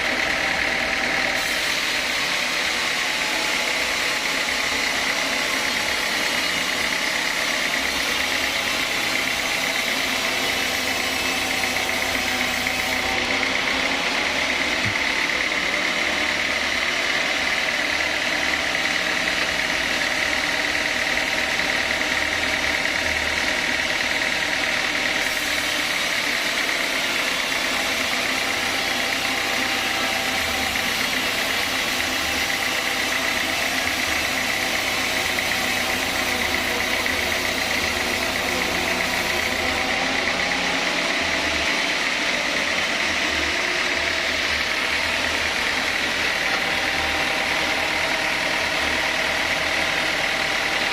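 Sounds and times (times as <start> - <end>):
sawmill saw whining: 0.0 - 50.9.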